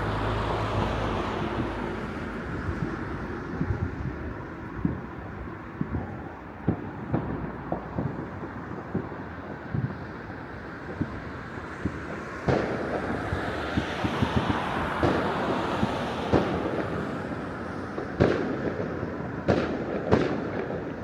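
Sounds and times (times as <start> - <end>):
distant fireworks bangs: 0.0 - 21.0
wind rush on microphone: 0.6 - 6.4.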